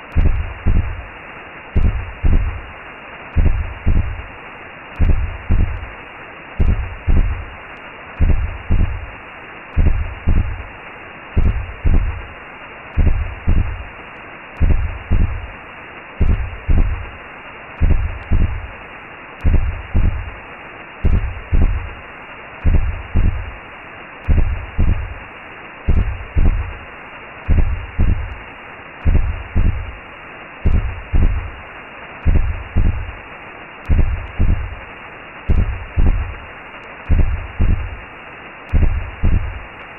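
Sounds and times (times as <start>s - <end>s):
deep heartbeat thumps: 0.0s - 1.1s, 1.8s - 2.7s, 3.4s - 4.3s, 5.0s - 5.9s, 6.6s - 7.5s, 8.2s - 9.1s, 9.8s - 10.7s, 11.4s - 12.3s, 13.0s - 13.9s, 14.6s - 15.5s, 16.2s - 17.1s, 17.8s - 18.7s, 19.4s - 20.4s, 21.0s - 22.0s, 22.6s - 23.6s, 24.2s - 25.2s, 25.9s - 26.8s, 27.5s - 28.4s, 29.0s - 30.0s, 30.6s - 31.6s, 32.2s - 33.2s, 33.9s - 34.8s, 35.5s - 36.4s, 37.1s - 38.0s, 38.7s - 39.6s
steady whooshing hiss: 0.0s - 39.9s.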